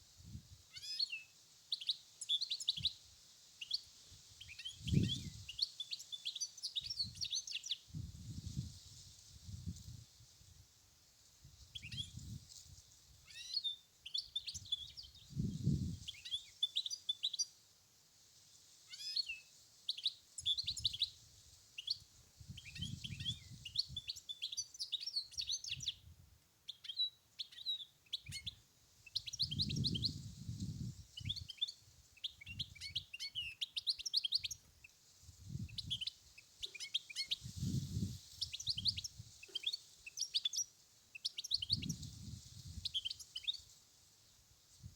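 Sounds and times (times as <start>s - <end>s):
goldfinch twittering song: 26.7s - 30.2s, 31.2s - 34.6s, 38.4s - 42.0s.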